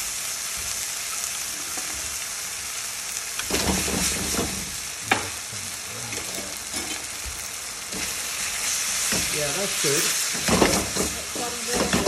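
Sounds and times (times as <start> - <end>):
chicken sizzling in a wok: 0.0 - 12.0
spatula scraping and knocking wok: 3.4 - 5.4, 6.0 - 12.0.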